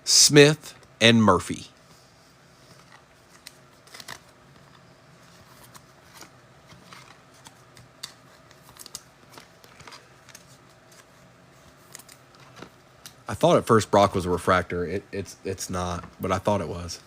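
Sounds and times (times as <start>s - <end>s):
low room hum: 0.0s - 17.0s
trading cards clicking and sliding: 2.6s - 13.2s.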